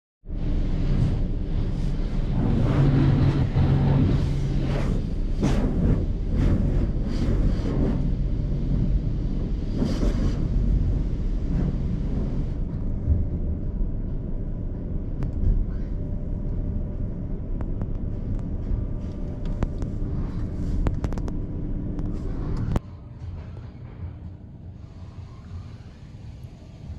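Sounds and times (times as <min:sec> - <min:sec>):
car wash low rumble: 0:00.3 - 0:26.9
hiss: 0:24.8 - 0:26.9.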